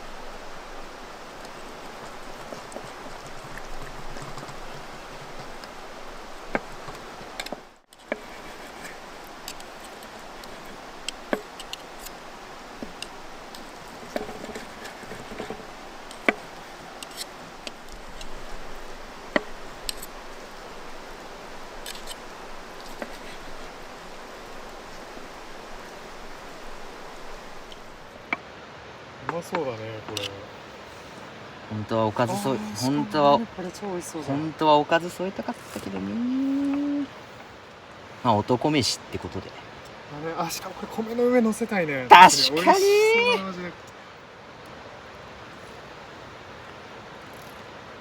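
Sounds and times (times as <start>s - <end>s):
stream water flowing: 0.0s - 48.0s
campfire crackling: 30.1s - 38.7s.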